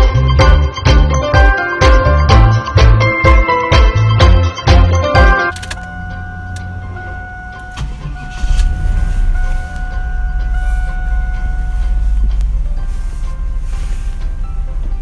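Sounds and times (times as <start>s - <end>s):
car engine starting and idling: 5.5s - 15.0s.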